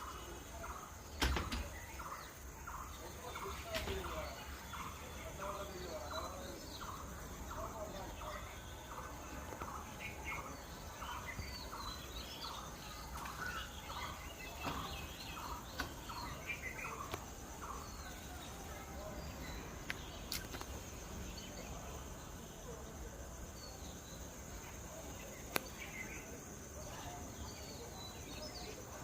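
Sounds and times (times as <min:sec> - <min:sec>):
birds chattering: 0:00.0 - 0:29.0.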